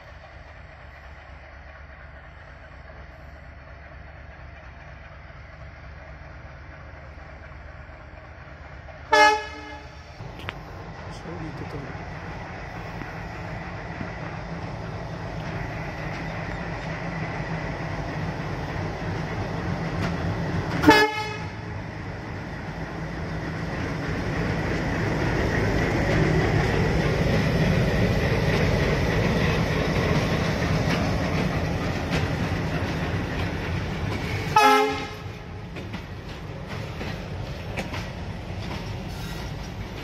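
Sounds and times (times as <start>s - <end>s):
diesel locomotive engine rumble: 0.0s - 40.0s
train wheels on rails: 0.0s - 40.0s
train horn toots: 9.1s - 10.0s, 20.8s - 21.6s, 34.5s - 35.4s.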